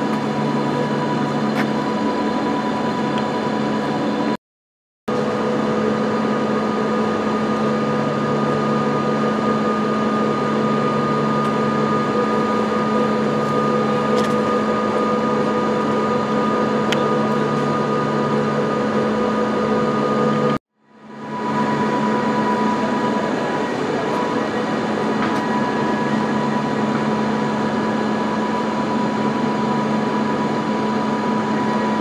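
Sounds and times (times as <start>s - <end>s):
idle train mechanical hum: 0.0s - 4.4s, 5.1s - 32.0s.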